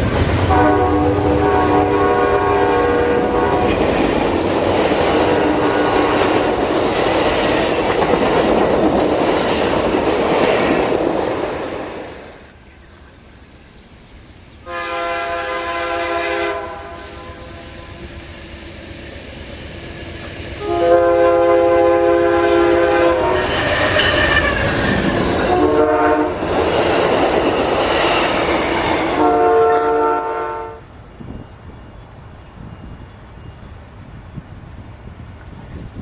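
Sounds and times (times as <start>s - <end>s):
train rumble and wheel noise: 0.0s - 36.0s
train air horn blasts: 0.5s - 3.9s, 5.2s - 6.5s, 14.6s - 18.2s, 20.6s - 26.5s, 28.8s - 30.9s.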